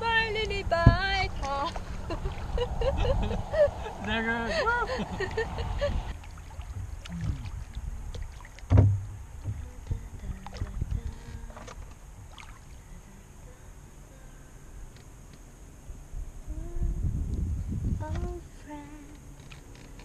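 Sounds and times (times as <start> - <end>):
low rumble: 0.0 - 13.7, 16.0 - 19.2
paddles knocking on canoe hull: 6.5 - 9.7
loud thump: 8.7 - 9.7.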